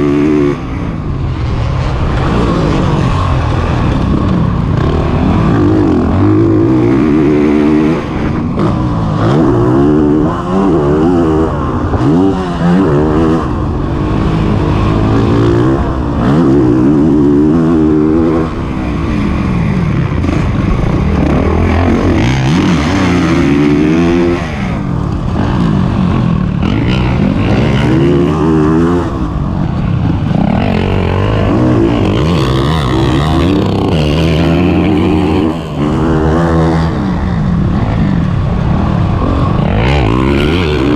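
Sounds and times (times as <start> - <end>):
motocross engine revving hard: 1.4 - 29.4, 30.0 - 40.9.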